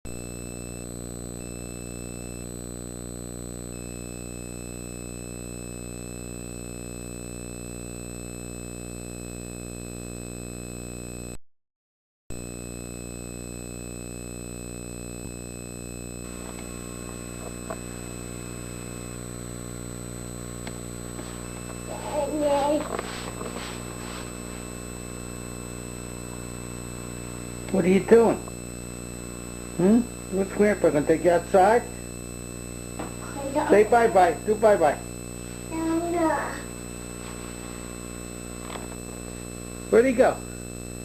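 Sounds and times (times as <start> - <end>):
electrical hum with high whine: 0.1 - 11.4, 12.3 - 41.0
faint clicks and rustling: 22.6 - 24.3.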